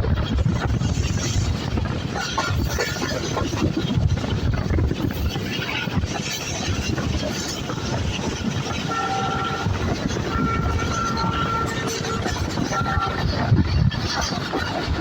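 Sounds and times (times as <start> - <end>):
passenger train rumbling: 0.0 - 15.0
train horn blasts: 8.7 - 13.5.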